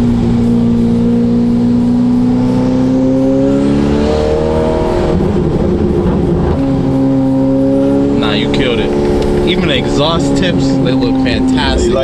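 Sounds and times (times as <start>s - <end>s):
sports car engine running: 0.0s - 12.0s.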